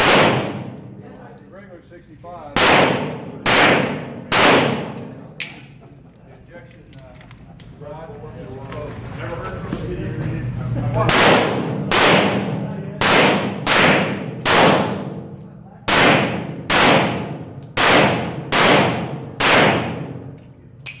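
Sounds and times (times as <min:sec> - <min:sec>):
pistol shots echoing: 0:00.0 - 0:01.0, 0:02.6 - 0:05.6, 0:11.1 - 0:20.4.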